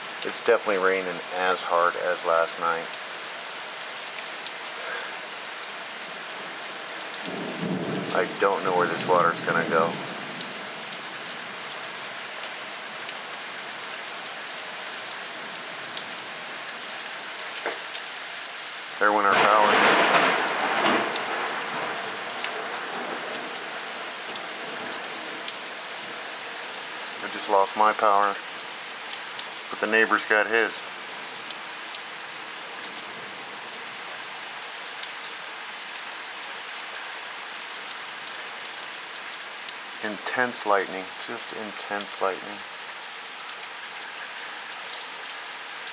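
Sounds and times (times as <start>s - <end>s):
heavy rain falling: 0.0s - 45.9s
raindrop ticks: 15.9s - 26.3s.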